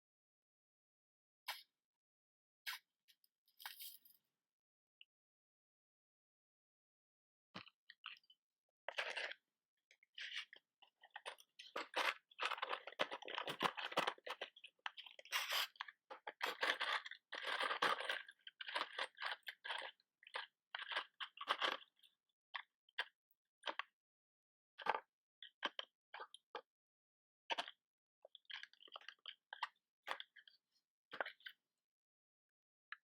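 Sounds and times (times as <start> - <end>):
crinkling and scratching handling: 3.6 - 4.2, 8.9 - 9.4, 10.2 - 22.1.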